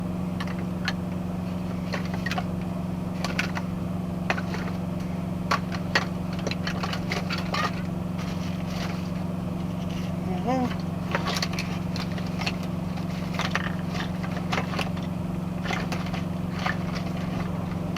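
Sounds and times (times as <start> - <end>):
truck engine droning: 0.0 - 17.9.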